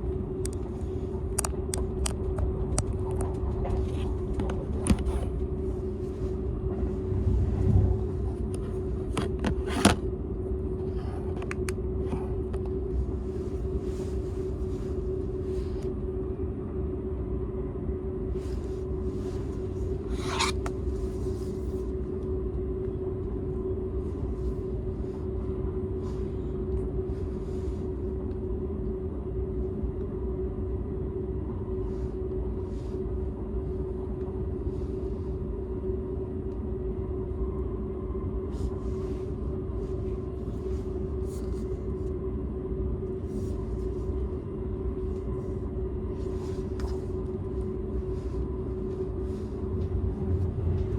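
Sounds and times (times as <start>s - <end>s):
constant hum: 0.0s - 50.9s
train wheels rumbling on rail: 2.2s - 9.8s.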